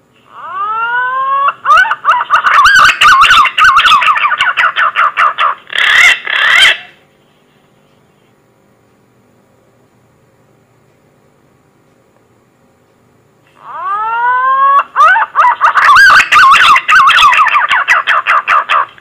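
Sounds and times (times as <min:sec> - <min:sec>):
distorted whistled bird song: 0:00.2 - 0:07.0, 0:13.6 - 0:19.0.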